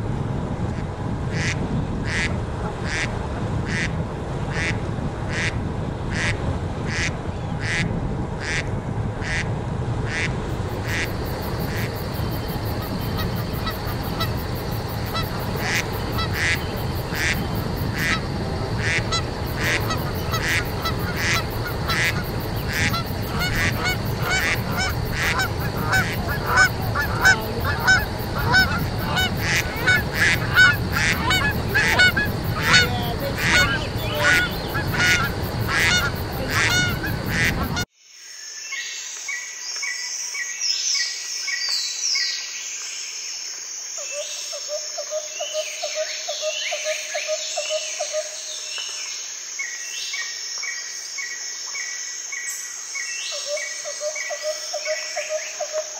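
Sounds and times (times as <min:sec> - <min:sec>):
geese honking: 0:10.1 - 0:37.9
small birds singing: 0:31.5 - 0:37.2.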